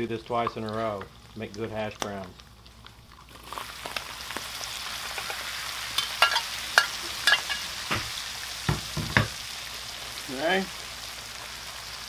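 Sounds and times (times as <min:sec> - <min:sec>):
hash browns sizzling in grease: 0:00.0 - 0:12.0
heavy knocks: 0:08.7 - 0:09.4.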